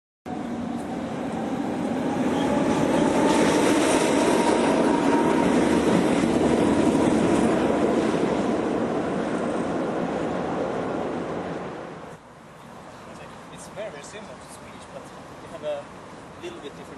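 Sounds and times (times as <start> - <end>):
train wheels rumbling on rails: 0.4 - 10.0.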